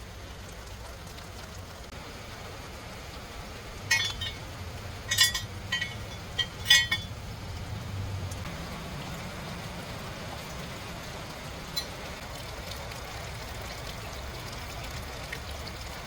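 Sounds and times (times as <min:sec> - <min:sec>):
metallic clinks: 0:05.1 - 0:07.1.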